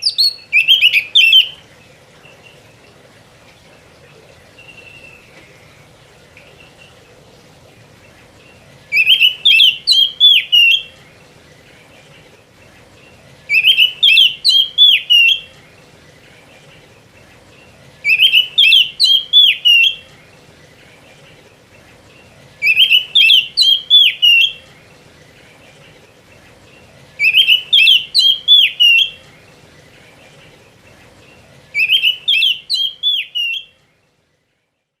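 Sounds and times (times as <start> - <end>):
bird singing whistled phrases: 0.0 - 1.6, 4.6 - 5.3, 8.9 - 10.9, 13.5 - 15.5, 18.0 - 20.0, 22.6 - 24.6, 27.2 - 29.2, 31.7 - 33.7.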